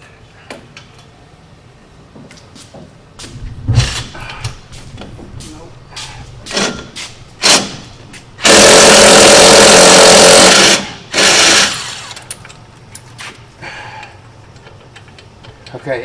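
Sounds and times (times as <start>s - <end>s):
impact wrench hammering: 6.5s - 12.2s.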